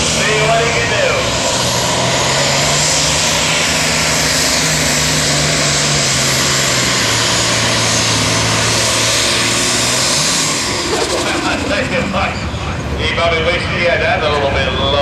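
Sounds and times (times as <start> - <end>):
tractor diesel engine running flat out: 0.0 - 15.0
announcer speaking: 0.1 - 1.3, 10.8 - 15.0.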